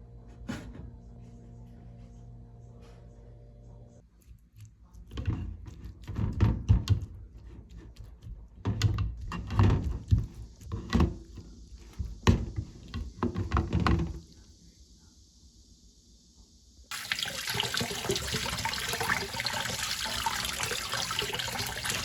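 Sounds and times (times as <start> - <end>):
faint steady hiss: 10.2 - 22.0.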